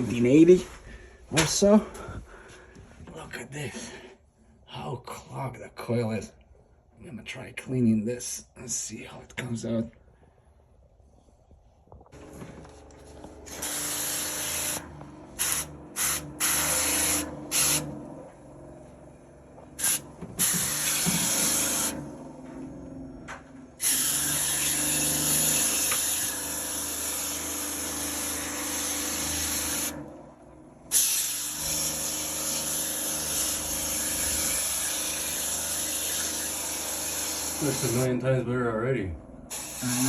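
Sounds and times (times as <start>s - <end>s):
cleaning spray hissing: 39.5s - 40.0s.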